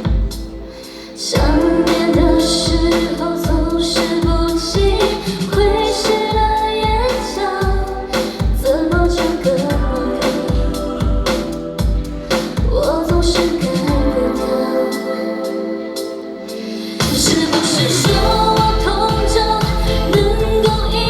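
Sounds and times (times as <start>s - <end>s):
kick drum beat: 0.0s - 0.5s, 1.4s - 2.9s, 18.1s - 21.0s
pop song: 0.0s - 21.0s
woman singing: 0.0s - 21.0s.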